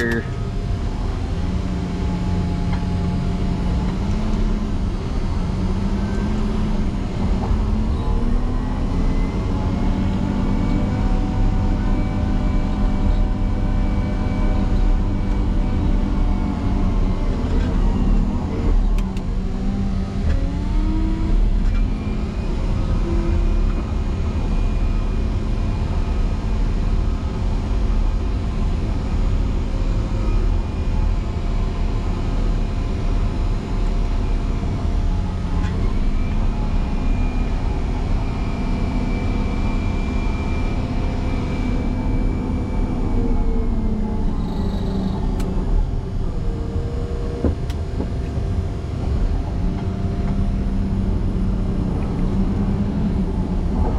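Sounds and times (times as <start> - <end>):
diesel engine revving: 0.0 - 25.2.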